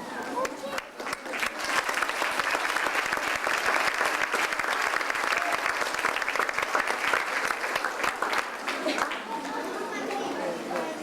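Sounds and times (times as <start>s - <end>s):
audience applauding: 0.2s - 9.7s.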